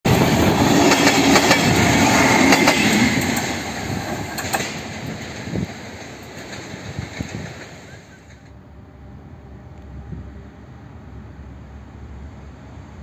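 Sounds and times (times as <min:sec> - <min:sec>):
train wheels clacking over rail joints: 0:00.1 - 0:08.6
train whine: 0:00.1 - 0:13.0.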